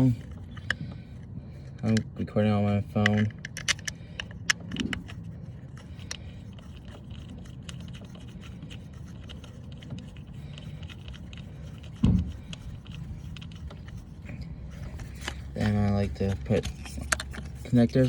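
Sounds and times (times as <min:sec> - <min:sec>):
faint scrapes of parts handled: 0:00.0 - 0:18.0
loud thump: 0:12.0 - 0:12.3.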